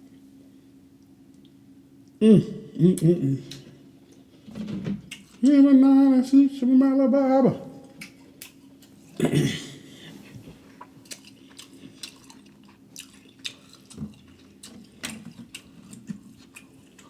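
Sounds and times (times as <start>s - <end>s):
wet chewing and lip smacking: 7.8s - 9.0s, 10.6s - 17.0s.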